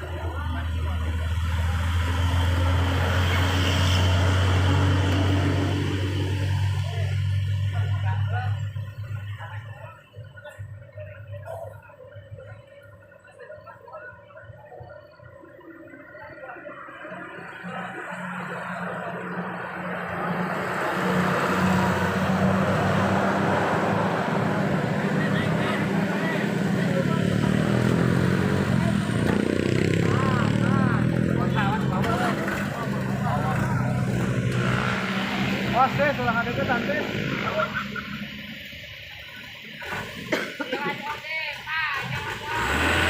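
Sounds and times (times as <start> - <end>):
vehicle passing by: 0.0 - 8.3, 17.1 - 38.7, 42.1 - 43.0
tyre and road noise: 0.0 - 13.1, 14.7 - 43.0.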